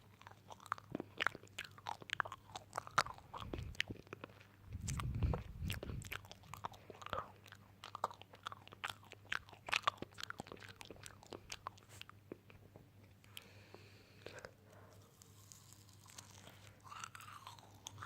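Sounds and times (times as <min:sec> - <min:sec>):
crunchy chewing: 0:00.0 - 0:18.0.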